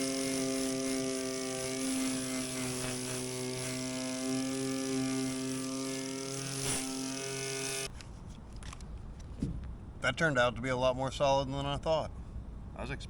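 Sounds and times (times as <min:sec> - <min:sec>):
wire wheel on sheet metal: 0:00.0 - 0:07.9.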